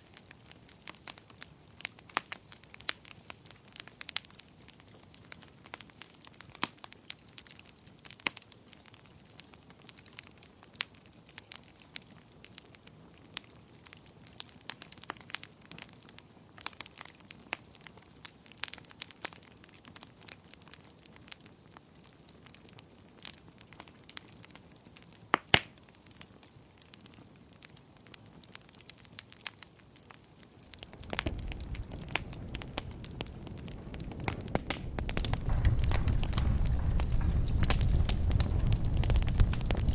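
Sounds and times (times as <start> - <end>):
low rumbling noise: 30.7 - 39.9
wood fire crackling: 30.7 - 39.9.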